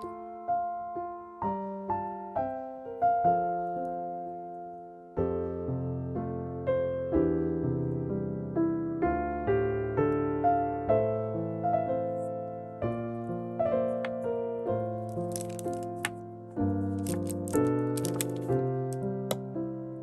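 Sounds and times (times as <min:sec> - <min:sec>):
gentle piano music: 0:00.0 - 0:20.0
faint clicks and rustles: 0:15.1 - 0:16.2, 0:16.9 - 0:19.0.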